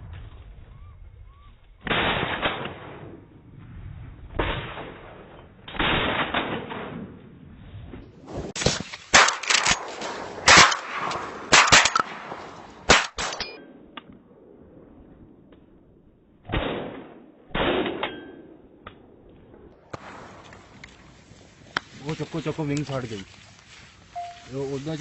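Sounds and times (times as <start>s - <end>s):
rapid sharp bangs: 8.5s - 13.6s.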